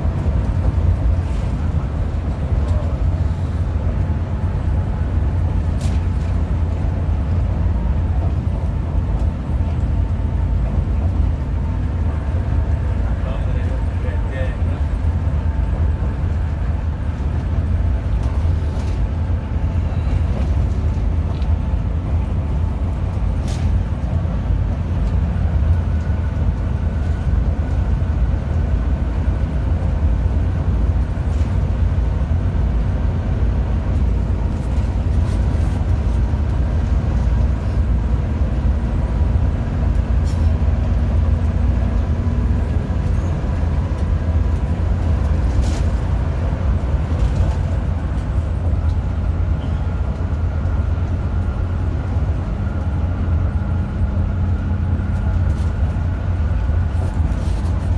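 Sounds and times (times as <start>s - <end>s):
bus engine and road rumble: 0.0s - 57.9s.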